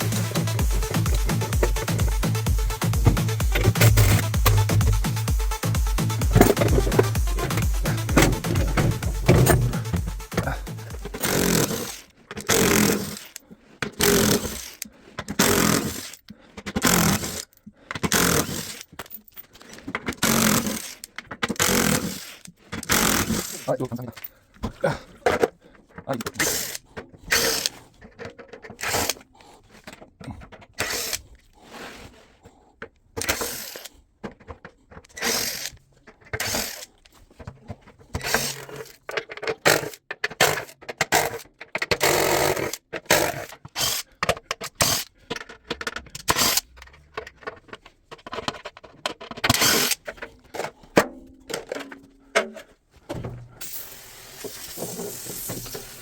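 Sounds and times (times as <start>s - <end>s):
tools clicking and scraping: 0.0s - 32.2s, 32.8s - 53.8s
steady hiss: 53.6s - 56.0s.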